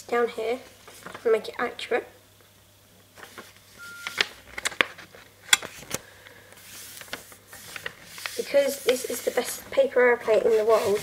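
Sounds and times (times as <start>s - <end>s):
paper being folded and creased: 0.9s - 1.3s, 6.6s - 11.0s.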